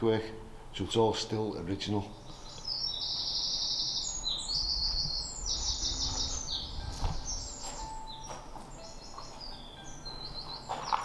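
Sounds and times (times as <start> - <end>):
songbird trilling: 2.2 - 11.0
low rumble: 4.4 - 7.6.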